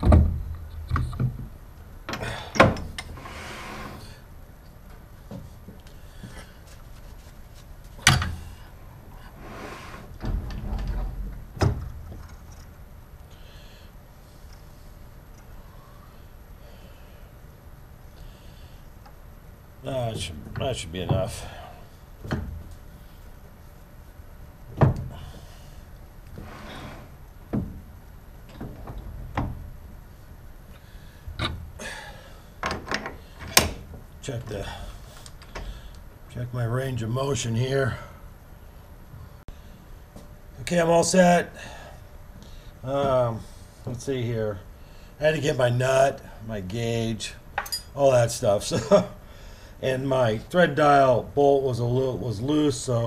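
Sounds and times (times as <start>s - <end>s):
short scraping hiss: 3.2s - 4.2s, 9.2s - 10.2s
hard objects knocking and clunking: 27.5s - 27.9s.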